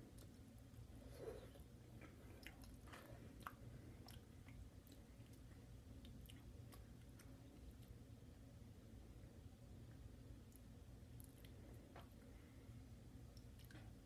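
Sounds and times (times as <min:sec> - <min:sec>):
chewing with wet mouth clicks: 0:01.4 - 0:08.0, 0:10.4 - 0:11.6, 0:13.3 - 0:14.0.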